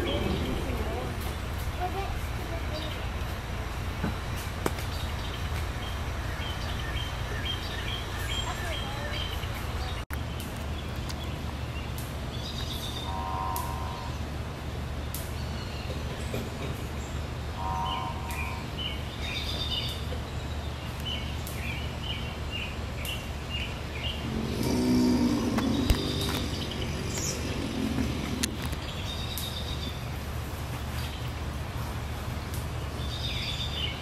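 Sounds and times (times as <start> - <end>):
low hum: 24.2 - 29.3.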